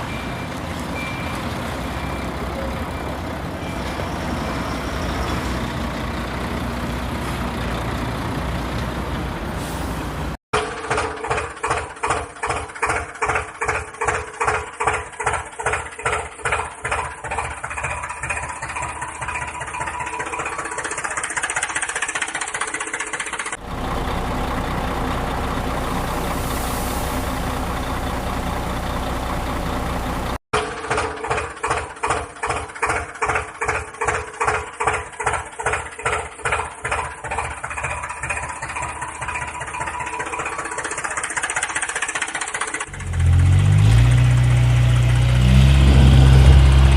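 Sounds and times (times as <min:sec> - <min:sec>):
rushing engine noise: 0:00.0 - 0:46.9
tractor engine chugging: 0:10.6 - 0:43.7.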